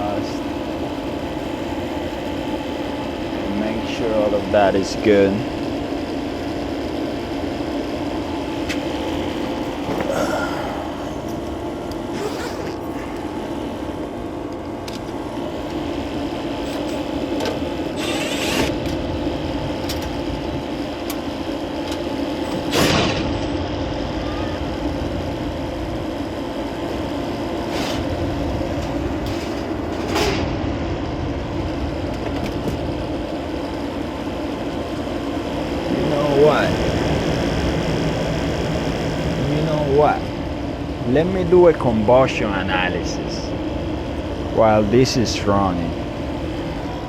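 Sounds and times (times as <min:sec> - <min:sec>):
furnace mechanical hum: 0:00.0 - 0:47.0.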